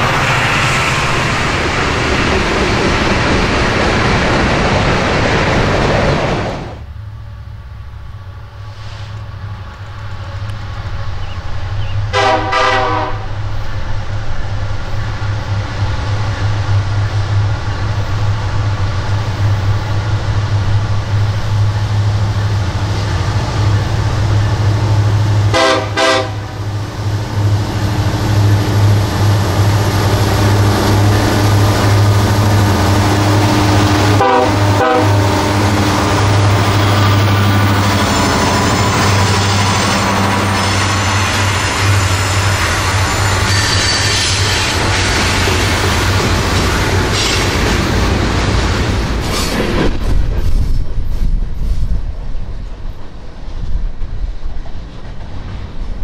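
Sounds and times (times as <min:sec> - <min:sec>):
diesel locomotive engines droning: 0:00.0 - 0:56.0
locomotive horn blasts: 0:12.1 - 0:13.4, 0:25.5 - 0:26.6, 0:32.3 - 0:36.6.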